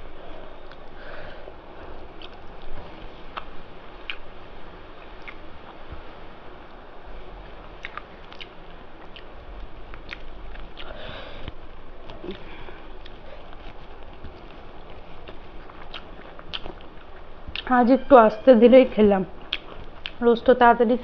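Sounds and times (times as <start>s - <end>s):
person chewing food: 2.0s - 4.3s, 5.2s - 5.8s, 7.8s - 17.7s, 19.3s - 20.2s
wet mouth clicks: 3.3s - 4.3s, 5.2s - 5.4s, 7.8s - 9.3s, 9.9s - 12.4s, 15.2s - 17.7s, 19.4s - 20.2s.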